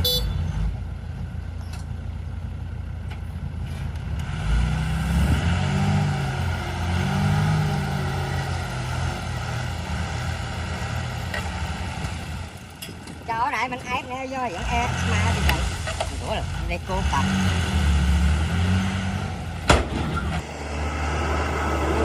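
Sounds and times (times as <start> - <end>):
heavy diesel engine running: 5.5 - 22.0.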